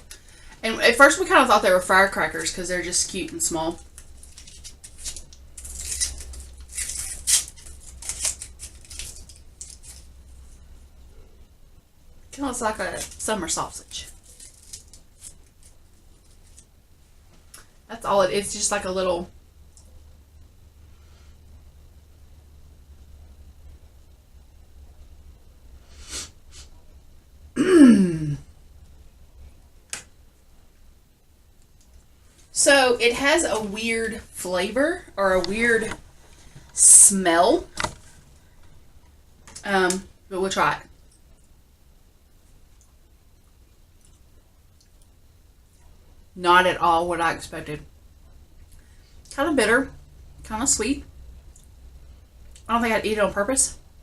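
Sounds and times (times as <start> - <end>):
wrapper crinkling: 3.7 - 10.4, 12.9 - 16.7
woman sniffing: 25.9 - 26.7
woman sighing: 27.6 - 28.5.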